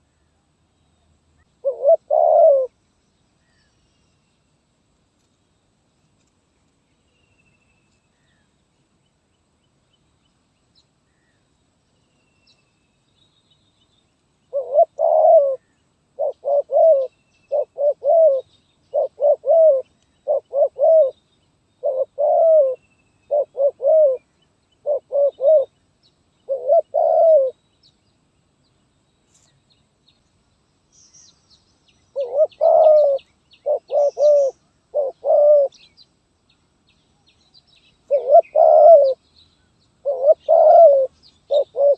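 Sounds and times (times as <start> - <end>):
dove cooing: 1.6 - 2.8, 14.5 - 21.2, 21.8 - 25.8, 26.5 - 27.6, 32.1 - 35.9, 38.0 - 39.2, 40.0 - 41.9
small birds chirping: 6.2 - 41.9.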